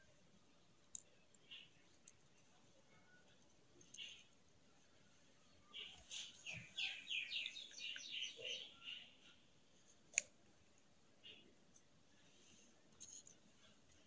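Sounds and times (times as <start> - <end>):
bird chirping: 0.6 - 2.2, 2.8 - 9.4.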